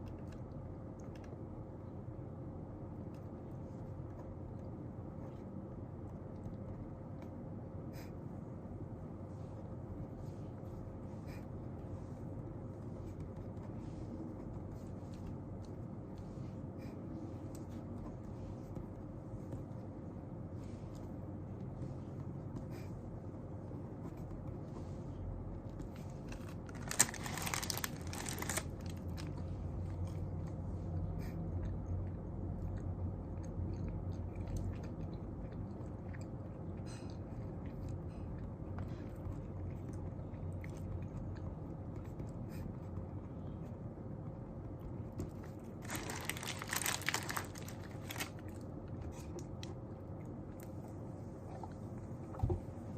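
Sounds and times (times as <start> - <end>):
low room hum: 0.0 - 52.9
paper rustling: 25.9 - 29.3, 45.8 - 48.4.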